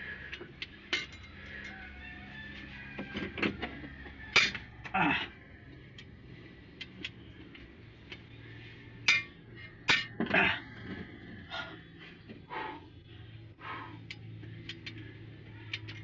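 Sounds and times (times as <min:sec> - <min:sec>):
metal tools clinking and knocking: 0:00.3 - 0:02.0, 0:03.1 - 0:04.7, 0:09.1 - 0:10.4, 0:15.7 - 0:16.0.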